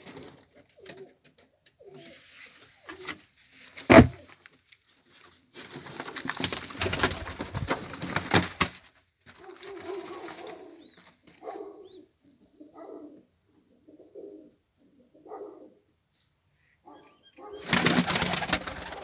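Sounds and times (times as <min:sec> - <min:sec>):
pigeons cooing: 0:01.8 - 0:02.2, 0:09.4 - 0:15.9, 0:16.9 - 0:19.0
rustling and clattering: 0:02.1 - 0:10.6.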